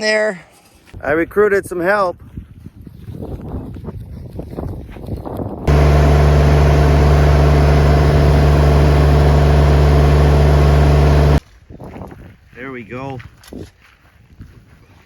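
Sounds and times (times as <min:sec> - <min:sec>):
tractor engine running: 0:05.7 - 0:11.4.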